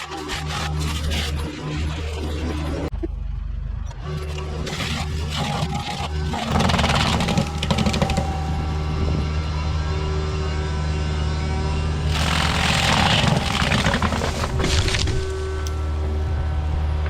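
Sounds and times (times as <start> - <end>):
harsh machine grinding: 0.0 - 2.9, 4.1 - 9.3, 12.0 - 16.2
diesel engine running under load: 0.0 - 17.0.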